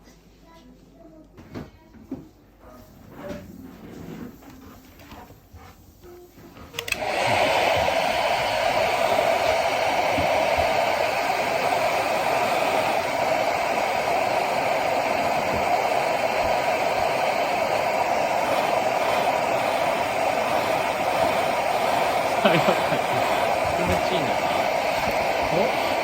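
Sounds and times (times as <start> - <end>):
hair dryer blowing: 6.7 - 26.0.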